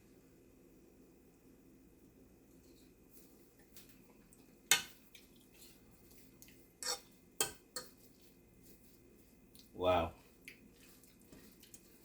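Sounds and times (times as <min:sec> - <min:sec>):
spoon scraping cooking pot: 0:06.8 - 0:08.1.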